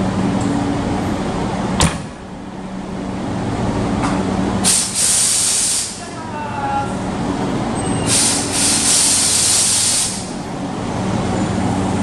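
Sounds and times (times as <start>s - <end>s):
electric train equipment humming: 0.0s - 12.0s
compressed air hiss: 4.6s - 6.0s, 8.1s - 10.4s.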